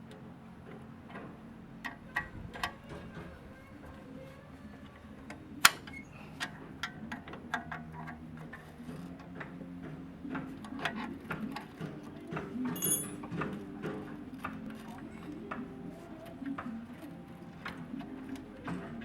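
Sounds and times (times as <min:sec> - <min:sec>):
hand tools clicking on metal: 0:12.7 - 0:13.3.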